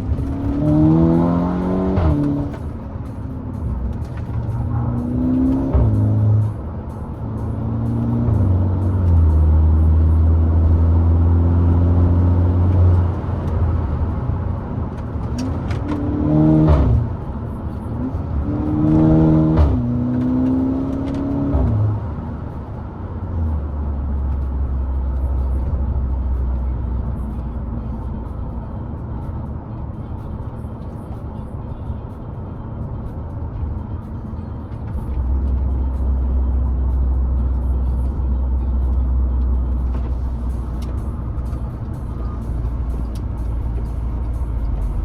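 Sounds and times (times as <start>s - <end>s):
car engine revving: 0.0s - 22.6s.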